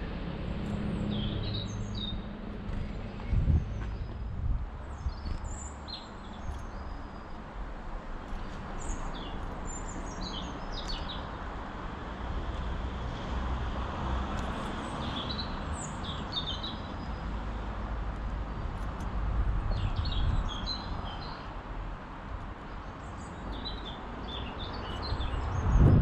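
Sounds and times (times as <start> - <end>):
small birds chirping: 0.6 - 7.5, 8.2 - 11.4, 14.4 - 17.4, 18.4 - 21.6, 22.4 - 26.0.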